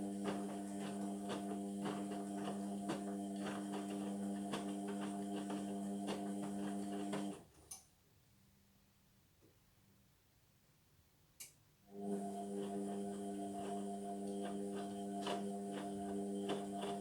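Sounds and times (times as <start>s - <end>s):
washing machine hum: 0.0s - 7.5s, 11.9s - 17.0s.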